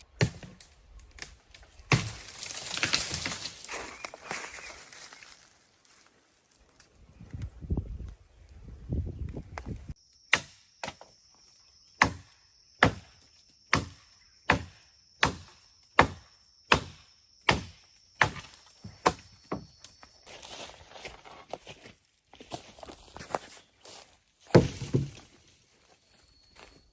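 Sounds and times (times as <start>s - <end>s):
axe chopping wood: 0.1s - 1.3s, 1.9s - 3.4s, 10.3s - 11.0s, 12.0s - 13.1s, 13.7s - 19.6s, 24.5s - 25.2s.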